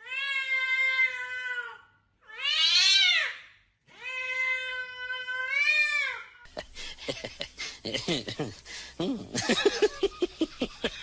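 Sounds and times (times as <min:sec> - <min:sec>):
cat yowling meows: 0:00.0 - 0:06.4.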